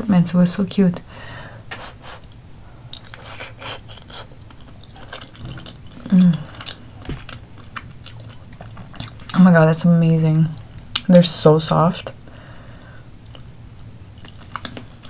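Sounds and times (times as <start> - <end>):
wet chewing mouth sounds: 2.1 - 9.4.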